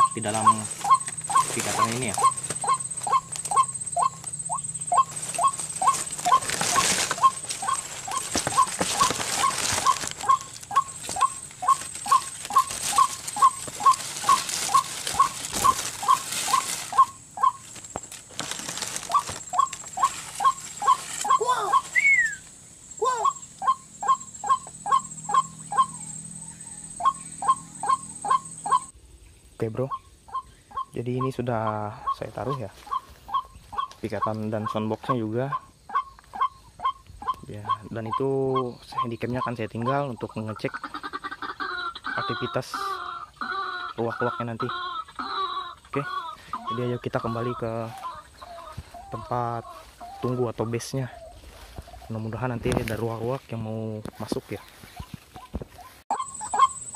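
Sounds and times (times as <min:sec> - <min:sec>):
rustling: 0:00.0 - 0:22.6, 0:46.4 - 0:56.9
steady high whine: 0:00.0 - 0:29.0
waterhen calls: 0:00.0 - 0:29.0, 0:29.8 - 0:52.8, 0:54.5 - 0:56.9.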